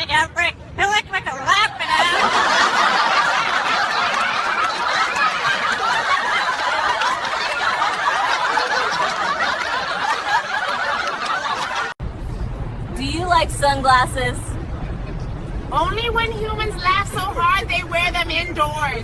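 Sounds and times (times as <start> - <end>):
group of people laughing: 1.7 - 12.0.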